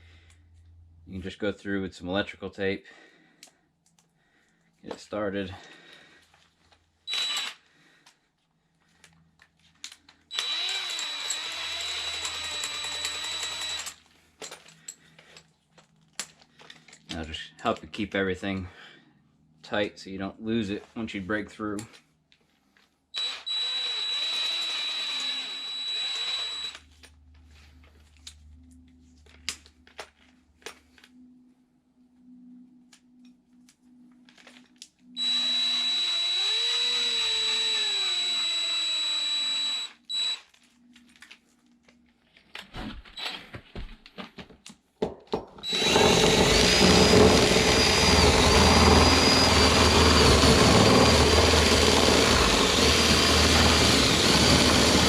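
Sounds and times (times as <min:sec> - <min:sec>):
power drill drilling into wood: 0:07.1 - 0:07.6, 0:10.3 - 0:14.0, 0:23.2 - 0:26.8, 0:35.2 - 0:40.4, 0:45.6 - 0:55.0.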